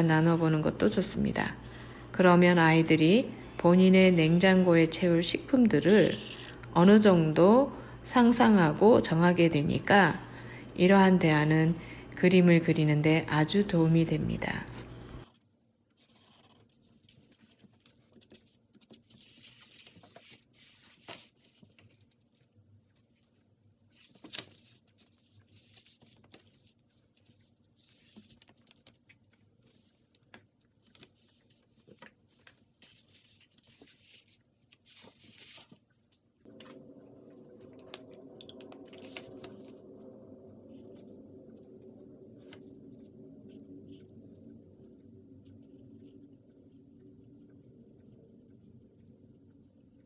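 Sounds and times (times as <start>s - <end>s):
low steady hum: 0.0s - 15.3s, 35.0s - 50.0s
pen scratching on paper: 0.0s - 15.4s, 16.0s - 16.8s.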